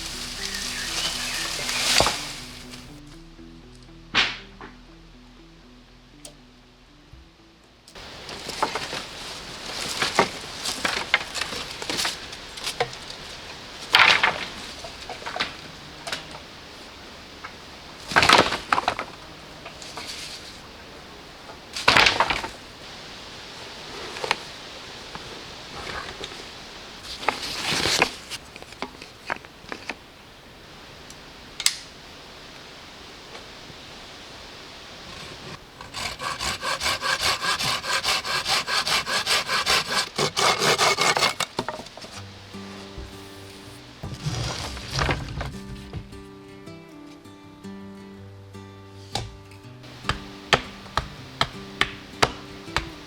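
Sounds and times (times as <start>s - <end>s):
rustling and crackling: 0.0s - 3.1s, 7.9s - 46.3s, 49.8s - 53.0s
soft music: 0.0s - 24.4s, 41.8s - 53.0s
wood clicks and knocks: 8.0s - 16.4s, 17.4s - 20.6s, 21.5s - 22.6s, 35.1s - 43.3s, 49.8s - 53.0s.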